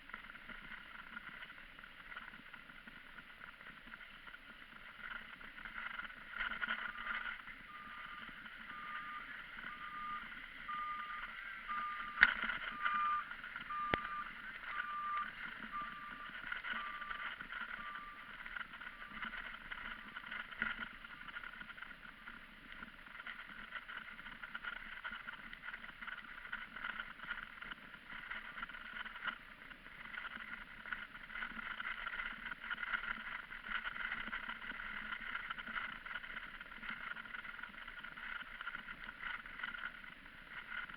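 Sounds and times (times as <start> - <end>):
faint beeps: 4.7 - 25.4.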